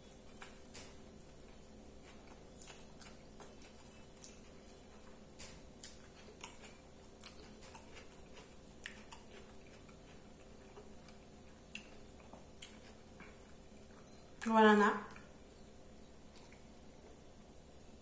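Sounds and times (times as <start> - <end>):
low steady hum: 0.0 - 18.0
mouth chewing wet clicks: 2.1 - 4.8, 5.4 - 14.4, 16.2 - 16.8.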